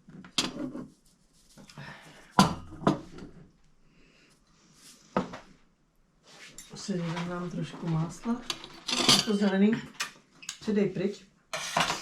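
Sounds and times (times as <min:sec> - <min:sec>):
cutlery and dishes clinking: 0:08.4 - 0:10.2, 0:11.6 - 0:12.0.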